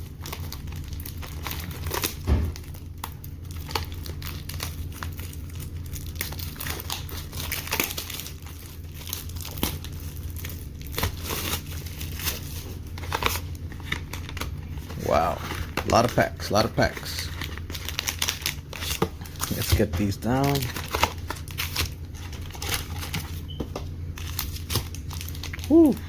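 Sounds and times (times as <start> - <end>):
plastic wrapping crinkling: 0.0 - 23.5, 24.2 - 26.0.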